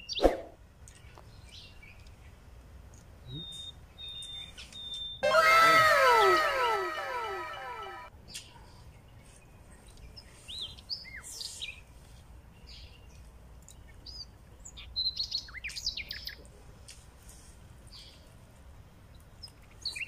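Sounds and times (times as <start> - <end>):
small birds chirping: 3.2 - 5.2.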